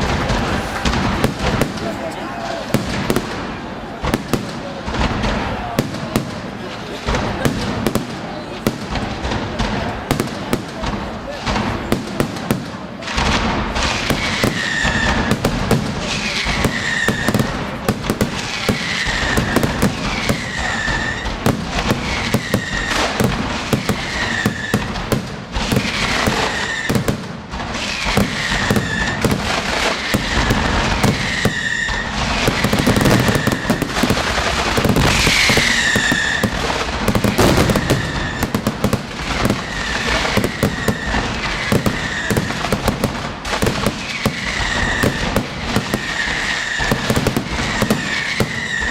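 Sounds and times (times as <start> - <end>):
fireworks bangs and crackle: 0.0 - 48.9
falling whistle: 31.0 - 34.0, 37.4 - 38.6, 47.8 - 48.9.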